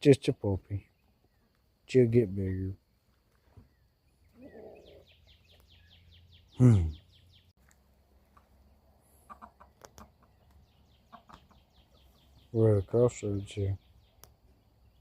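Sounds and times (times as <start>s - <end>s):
chicken calling: 4.2s - 7.1s, 8.3s - 12.2s
chickens clucking softly: 8.2s - 12.5s.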